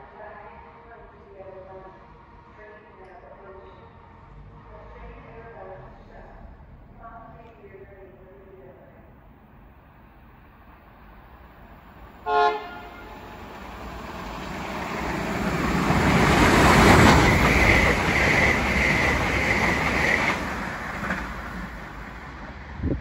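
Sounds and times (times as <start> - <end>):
diesel train passing: 0.0 - 23.0
train horn toot: 12.2 - 13.4.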